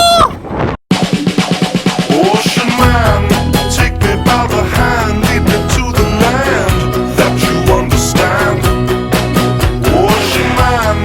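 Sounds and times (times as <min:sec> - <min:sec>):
fast drum roll in music: 0:00.9 - 0:08.5.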